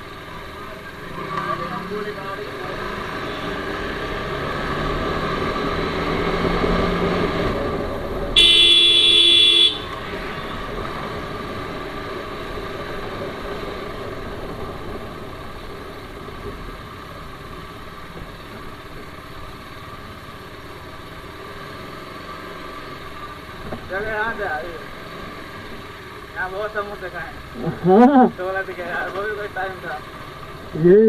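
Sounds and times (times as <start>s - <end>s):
motorcycle engine running: 0.0s - 31.0s
road noise: 0.0s - 31.0s
vehicle horn honk: 8.4s - 10.5s.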